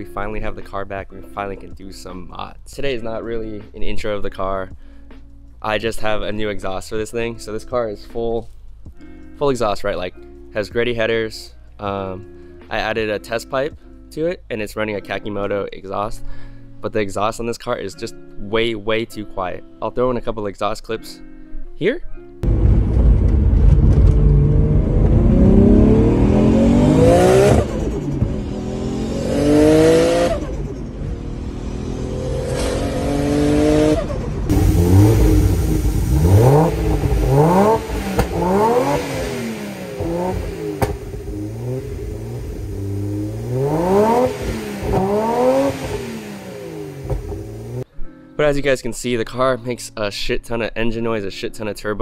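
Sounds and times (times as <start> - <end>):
car engine revving: 22.4 - 47.8.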